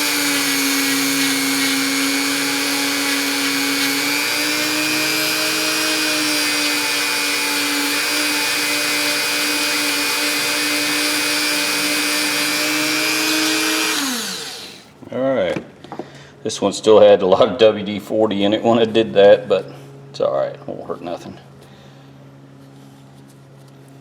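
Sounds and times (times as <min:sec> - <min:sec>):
rotary tool whining: 0:00.0 - 0:14.9.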